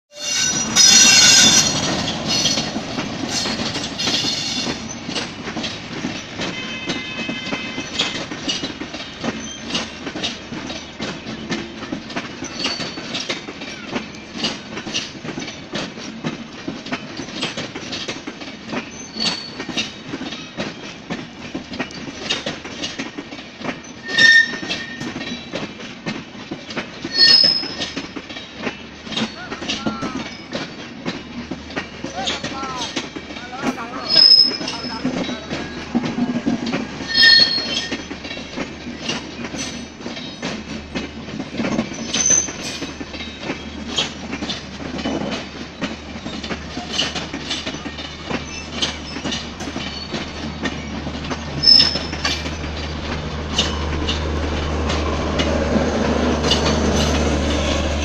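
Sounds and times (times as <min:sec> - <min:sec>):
diesel locomotive passing: 0:00.1 - 0:58.0
wheels clickety-clack over rail joints: 0:00.1 - 0:58.0
high-pitched squeals: 0:27.1 - 0:27.9, 0:37.0 - 0:38.2, 0:51.6 - 0:52.5.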